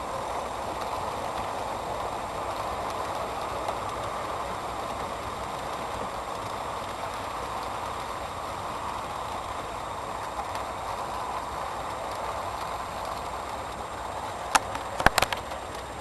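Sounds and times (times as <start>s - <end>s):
model train motors whirring: 0.0s - 16.0s
sharp clicks: 14.5s - 15.9s.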